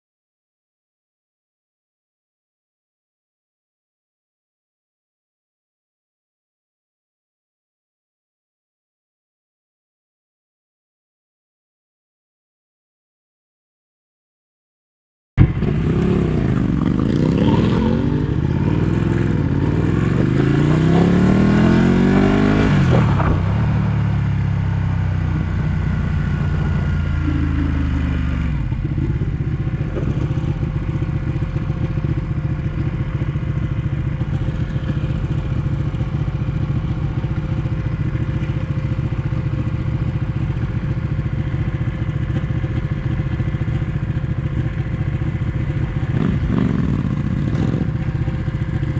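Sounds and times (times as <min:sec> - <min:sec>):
motorcycle engine idling: 0:15.4 - 0:48.9
motorcycle engine revving: 0:15.4 - 0:48.9.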